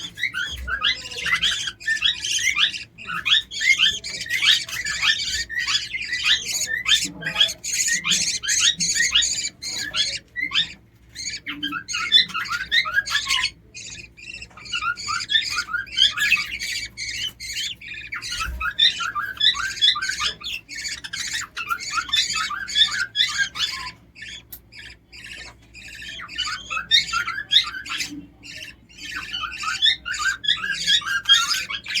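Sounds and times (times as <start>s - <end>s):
lovebirds squawking and chirping: 0.0s - 32.0s.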